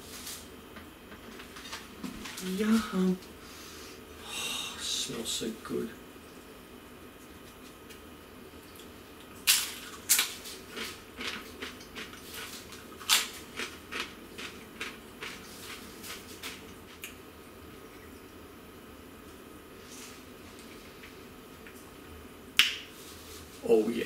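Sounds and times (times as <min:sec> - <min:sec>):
chewing crisp cracker: 0:08.6 - 0:17.2.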